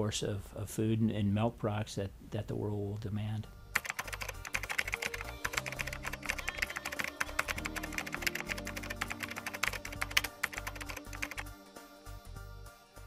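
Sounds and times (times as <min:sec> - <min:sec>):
soft background music: 0:00.0 - 0:13.0
rapid keyboard typing: 0:03.8 - 0:11.5.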